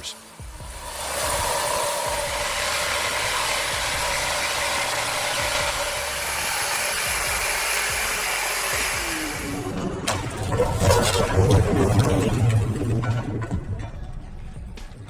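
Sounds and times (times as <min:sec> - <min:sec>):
machine running with hiss: 0:00.0 - 0:09.8.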